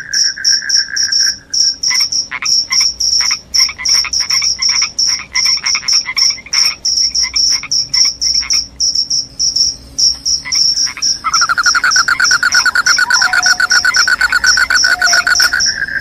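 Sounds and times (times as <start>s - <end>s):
crickets chirping: 0.0s - 16.0s
fast low insect trill: 0.0s - 16.0s
lower pulsing insect call: 0.0s - 16.0s.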